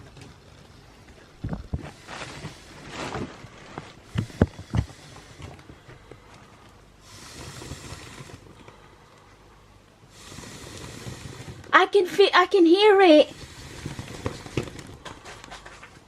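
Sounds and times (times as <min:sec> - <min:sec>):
rustling: 0:00.0 - 0:09.3
breathy hiss: 0:01.8 - 0:15.7.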